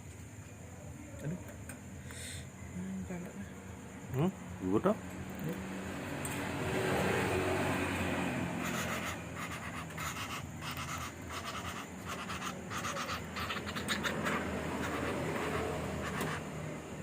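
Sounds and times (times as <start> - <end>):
woodpecker chick begging calls: 8.6 - 16.4.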